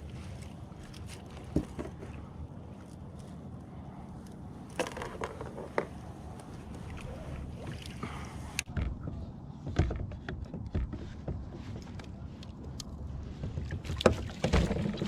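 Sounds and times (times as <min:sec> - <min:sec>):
wind and water rumble: 0:00.0 - 0:15.0
gear knocking on a kayak: 0:08.7 - 0:15.0.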